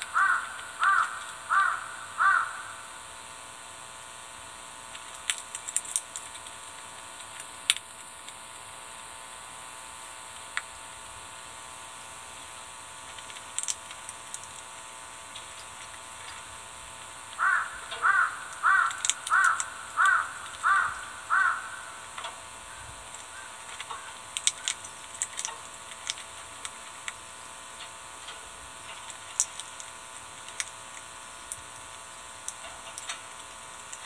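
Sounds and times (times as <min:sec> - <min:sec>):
bird calling: 0:00.0 - 0:02.9, 0:11.2 - 0:12.6, 0:17.4 - 0:24.7.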